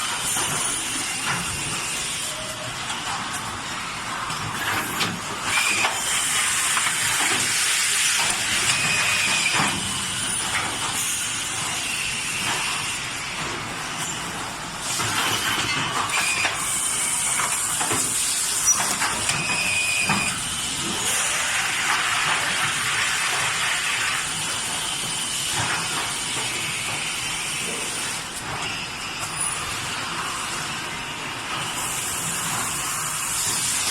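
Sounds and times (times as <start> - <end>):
labeling machine hissing: 16.1 - 33.9.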